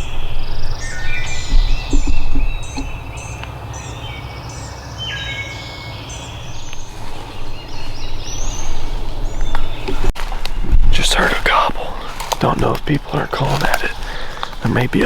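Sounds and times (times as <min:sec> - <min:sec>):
songbirds singing: 0:00.0 - 0:15.0
steady low rumble: 0:00.0 - 0:15.0.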